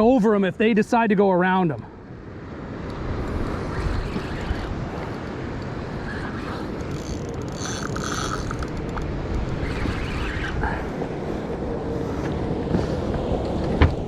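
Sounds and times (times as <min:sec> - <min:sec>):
wind on microphone: 0:02.9 - 0:14.0
boat engine running: 0:06.3 - 0:09.1.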